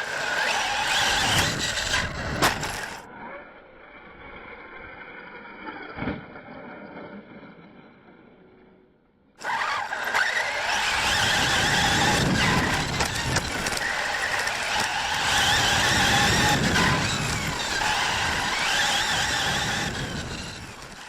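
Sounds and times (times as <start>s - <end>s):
rc car motor whining: 0.0s - 3.1s, 9.4s - 21.0s.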